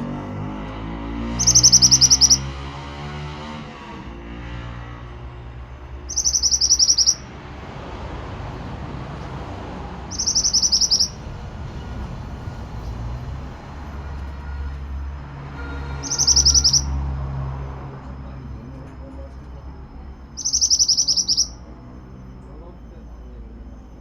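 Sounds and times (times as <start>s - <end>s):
bird singing buzzy trills: 1.3s - 3.4s, 4.8s - 7.6s, 10.0s - 12.1s, 15.9s - 17.2s, 19.6s - 24.0s.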